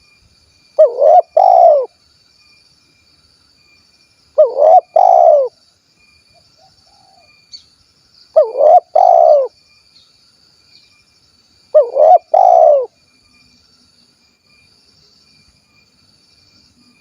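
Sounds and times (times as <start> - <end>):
dove cooing: 0.8 - 1.9, 4.4 - 5.6, 8.4 - 9.5, 11.7 - 12.9.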